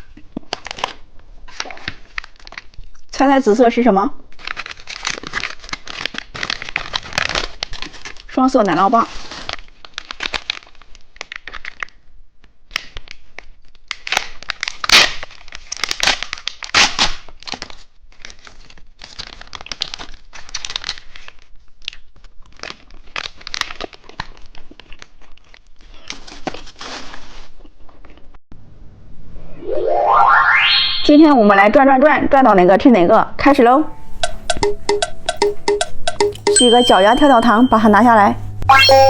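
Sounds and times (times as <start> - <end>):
plastic wrapper crinkling and tearing: 0.1 - 3.1, 4.2 - 28.2.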